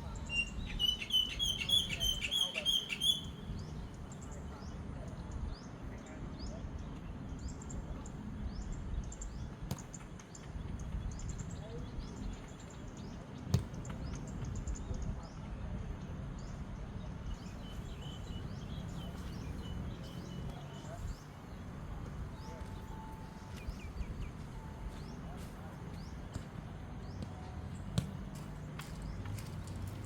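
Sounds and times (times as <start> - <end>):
birds chirping: 0.0 - 5.8, 16.4 - 30.0.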